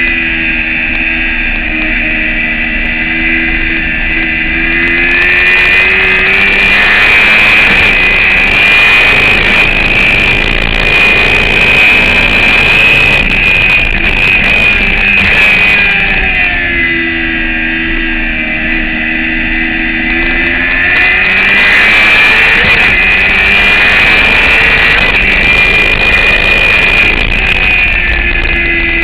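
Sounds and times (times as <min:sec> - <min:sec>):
racing motorcycle engine: 0:00.0 - 0:29.0
wind rushing over microphone: 0:00.0 - 0:29.0.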